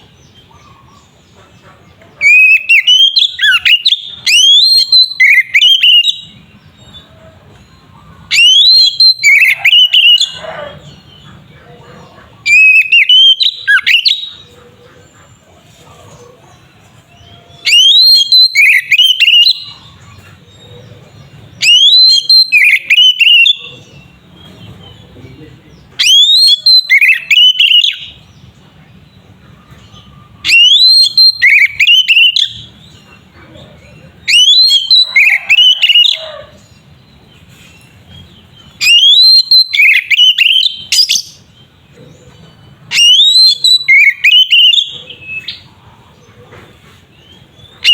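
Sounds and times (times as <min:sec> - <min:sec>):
bird singing whistled notes: 0:02.2 - 0:07.0, 0:08.3 - 0:10.4, 0:12.5 - 0:14.4, 0:17.1 - 0:20.8, 0:21.5 - 0:24.7, 0:25.9 - 0:28.2, 0:30.0 - 0:33.0, 0:34.2 - 0:36.3, 0:38.5 - 0:41.7, 0:42.9 - 0:45.6, 0:47.6 - 0:47.9.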